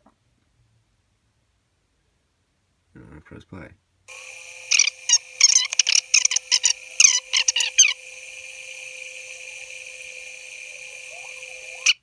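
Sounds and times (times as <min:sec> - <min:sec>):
constant hum: 0:04.1 - 0:12.0
steady hiss: 0:04.1 - 0:12.0
shrill squeaky chirps: 0:04.2 - 0:12.0.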